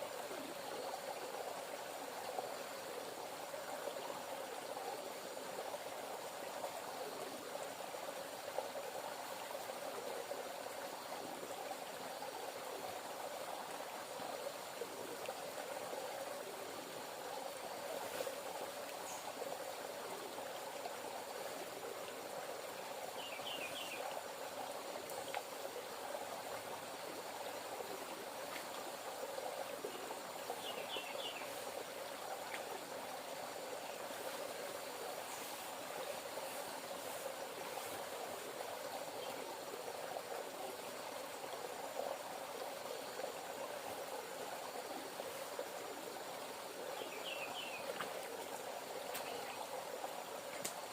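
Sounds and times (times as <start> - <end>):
river water flowing: 0.0 - 50.9.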